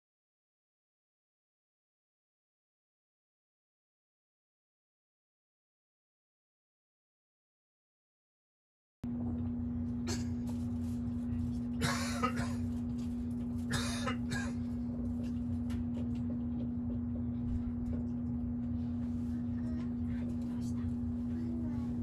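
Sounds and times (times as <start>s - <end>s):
electrical hum: 9.1s - 22.0s
train carriage rumble: 9.1s - 22.0s.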